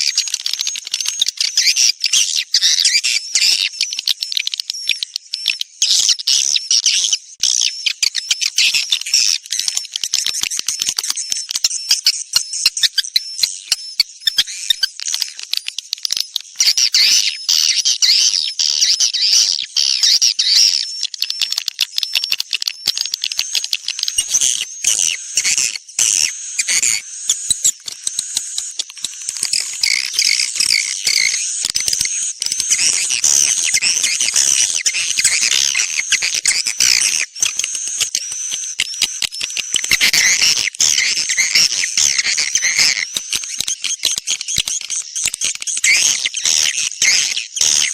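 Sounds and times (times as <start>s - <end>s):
swiftlets twittering and chirping: 0.0s - 47.9s.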